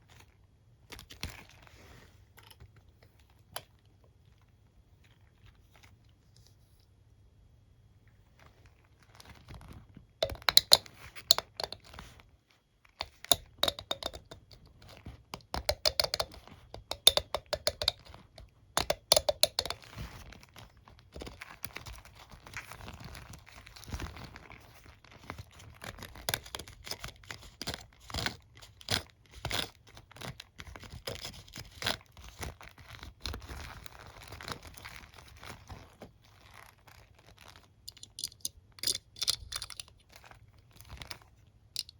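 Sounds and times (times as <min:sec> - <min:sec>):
fingers scratching hairbrush bristles: 0:10.2 - 0:11.9.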